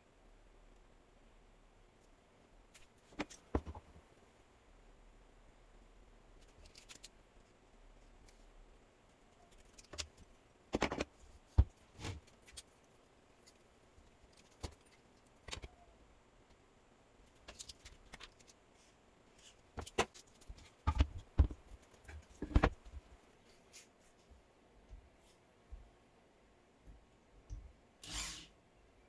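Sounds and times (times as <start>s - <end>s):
hard objects clicking and knocking: 9.8s - 12.3s, 19.8s - 23.0s.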